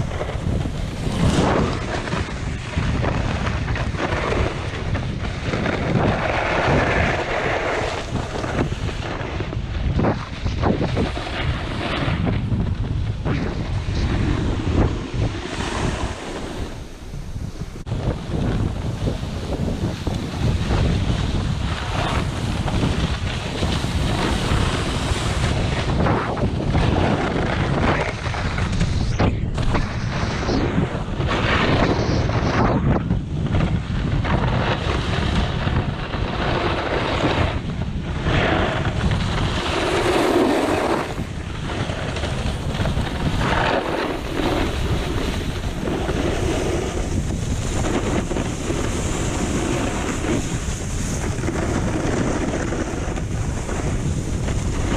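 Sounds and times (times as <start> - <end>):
snowboard scraping icy snow: 0.0 - 54.9
wind buffeting microphone: 0.0 - 54.9.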